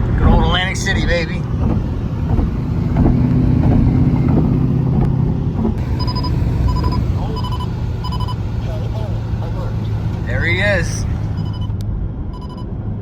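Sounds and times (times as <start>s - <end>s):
car engine droning: 0.0s - 13.0s
electronic warning beeps: 5.8s - 8.4s, 11.2s - 12.7s.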